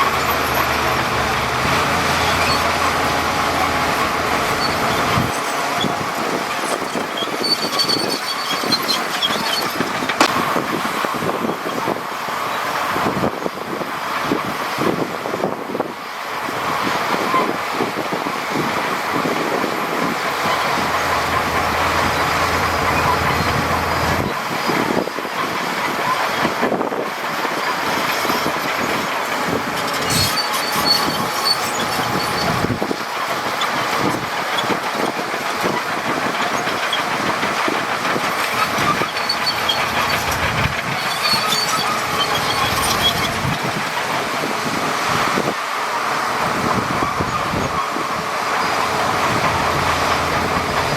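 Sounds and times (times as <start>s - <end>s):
bulldozer diesel engine under load: 0.0s - 50.9s
steel tracks clanking: 0.0s - 50.9s
short high-pitched squeals: 1.9s - 10.2s, 27.6s - 33.0s, 38.4s - 43.6s.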